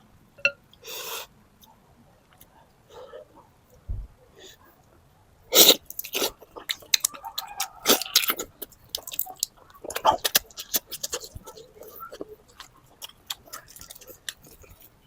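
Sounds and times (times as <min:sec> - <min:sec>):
wet chewing: 0:05.6 - 0:15.0.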